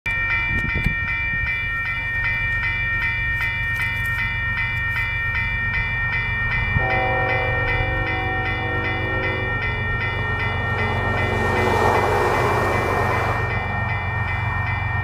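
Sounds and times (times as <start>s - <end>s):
crossing warning bell ringing: 0.1s - 15.0s
low rumble of approaching train: 0.1s - 15.0s
diesel locomotive horn chord: 6.8s - 13.8s.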